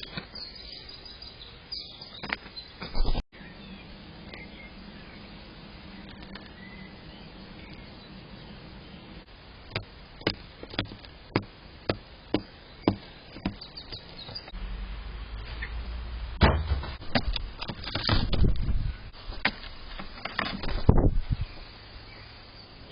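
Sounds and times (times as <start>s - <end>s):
sharp taps: 9.7s - 14.0s
loud thump: 16.4s - 17.4s.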